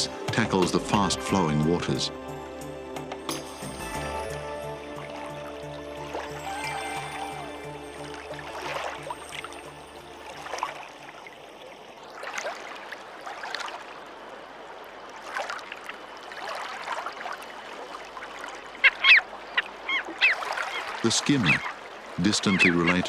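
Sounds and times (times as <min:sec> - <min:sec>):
background music: 0:00.0 - 0:11.2
river water flowing: 0:00.0 - 0:23.0
short bird calls: 0:18.8 - 0:21.8, 0:22.4 - 0:23.0.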